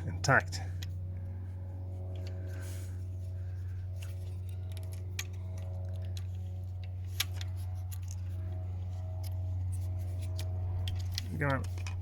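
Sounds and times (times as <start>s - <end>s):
steady low hum: 0.0s - 12.0s
small plastic parts clicking: 10.4s - 12.0s.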